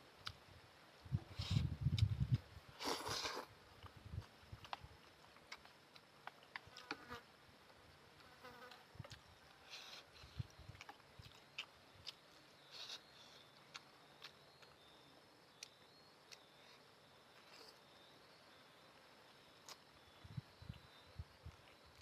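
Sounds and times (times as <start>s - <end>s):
faint chewing: 2.8s - 7.2s, 8.2s - 14.9s, 19.6s - 22.0s.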